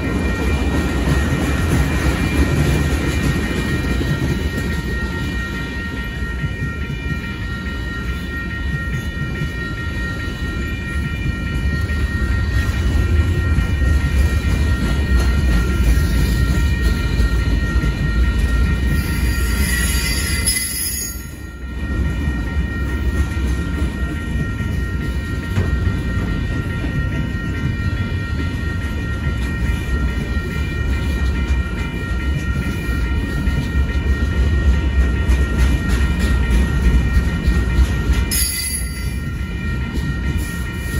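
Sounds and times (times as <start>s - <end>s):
crossing bell ringing: 0.0s - 40.9s
train wheels rumbling on rails: 0.0s - 40.9s
high-pitched wheel squeal: 18.9s - 21.5s.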